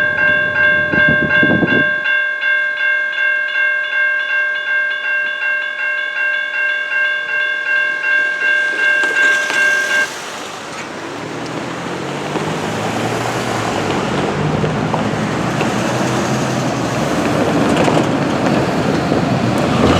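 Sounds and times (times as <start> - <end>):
railroad crossing bell dinging: 0.0 - 10.6
vehicle engine and tyre noise: 8.3 - 19.9.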